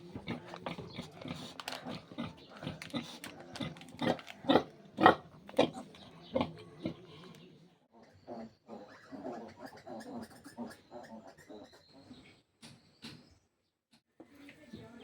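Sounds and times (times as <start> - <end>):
pigs grunting: 0.1 - 7.1.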